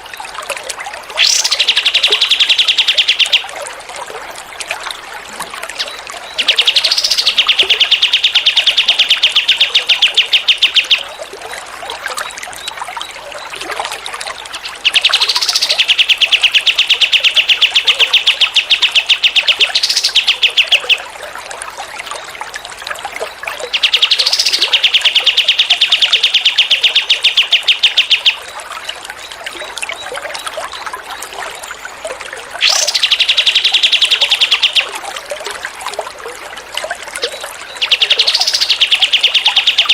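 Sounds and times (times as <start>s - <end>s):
water trickling faintly: 0.0s - 39.9s
songbird rattling trill: 1.2s - 3.5s, 5.7s - 11.2s, 14.5s - 21.1s, 23.7s - 28.5s, 32.6s - 35.0s, 37.7s - 39.9s.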